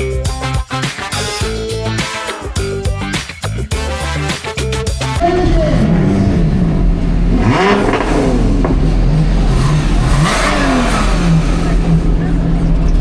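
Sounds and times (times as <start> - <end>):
car engine revving: 5.2 - 13.0.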